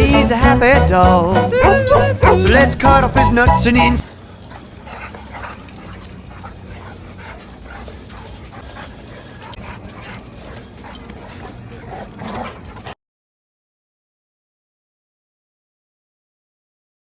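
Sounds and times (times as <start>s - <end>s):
dogs whimpering and yipping: 1.4s - 13.0s.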